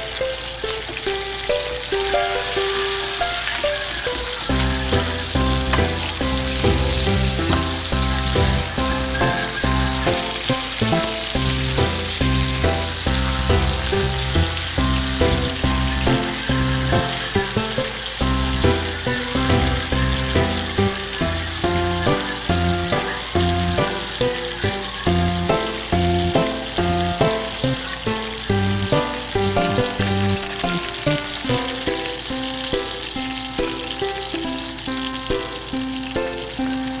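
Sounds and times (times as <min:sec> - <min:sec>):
fish sizzling in hot oil: 0:00.0 - 0:37.0
background music with bass line: 0:04.5 - 0:23.9.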